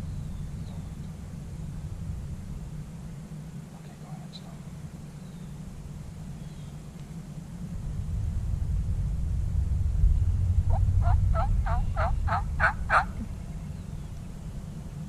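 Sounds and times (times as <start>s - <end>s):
steady low rumble: 0.0s - 15.0s
turkey yelping: 11.0s - 13.2s.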